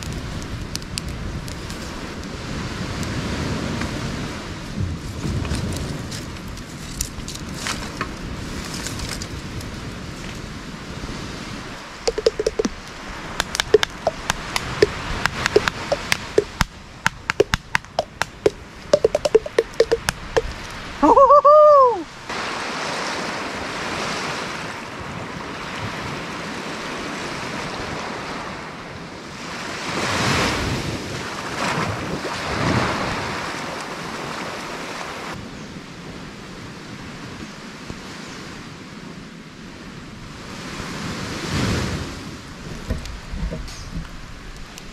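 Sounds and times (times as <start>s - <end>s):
campfire crackling: 0.0s - 2.4s, 11.7s - 21.0s
waves washing on beach: 0.0s - 43.4s.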